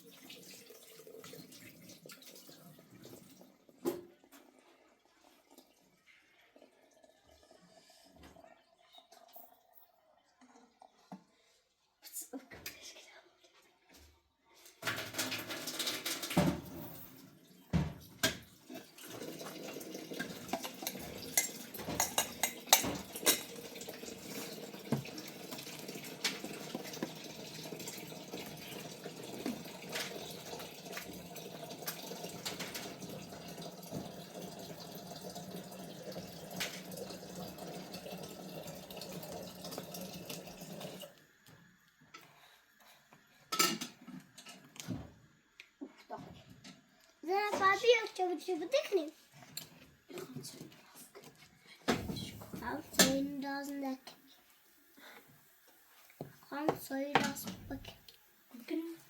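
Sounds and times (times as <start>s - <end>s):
tap water running into sink: 0.0s - 4.7s, 14.8s - 41.6s, 51.9s - 54.2s, 56.2s - 59.0s
dishes clinking: 20.5s - 23.6s, 43.5s - 44.6s.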